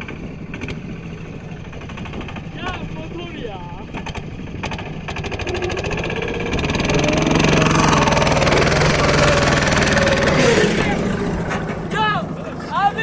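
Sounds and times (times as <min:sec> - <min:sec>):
small tractor engine revving: 0:03.8 - 0:11.9.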